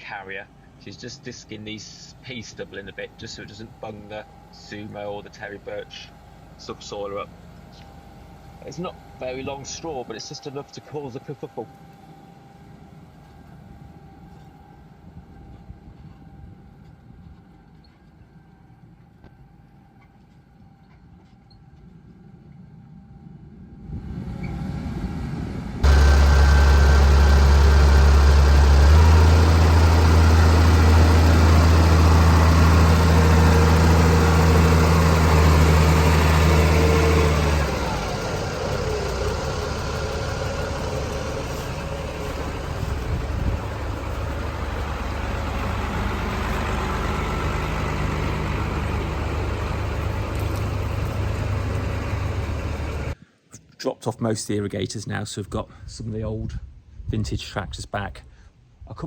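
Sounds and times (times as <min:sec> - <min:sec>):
tractor engine running: 0:00.0 - 0:10.6, 0:25.8 - 0:53.2.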